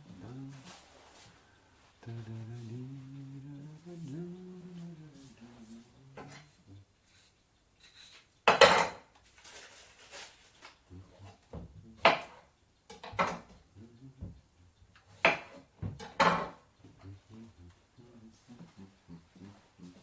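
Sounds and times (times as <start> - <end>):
dishes and cutlery clattering: 7.9 - 10.2, 15.2 - 16.6.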